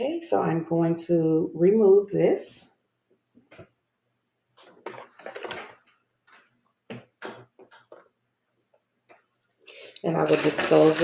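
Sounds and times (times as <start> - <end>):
plastic tubing rustling: 4.6 - 8.1, 9.1 - 11.0.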